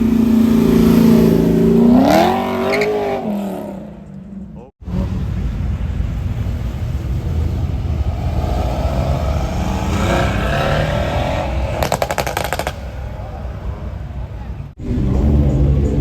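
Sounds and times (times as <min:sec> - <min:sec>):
car engine accelerating: 0:04.8 - 0:16.0
sharp exhaust pops: 0:11.6 - 0:13.1.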